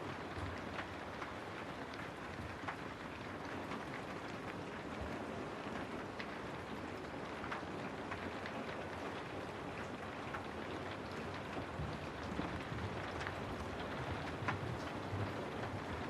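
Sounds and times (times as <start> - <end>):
raindrops ticking on a surface: 0.0 - 16.0
steady rain falling: 0.0 - 16.0.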